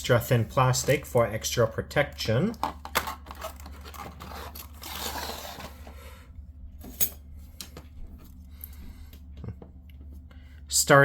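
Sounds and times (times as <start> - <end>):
plastic wrapping rustling: 3.0 - 5.9.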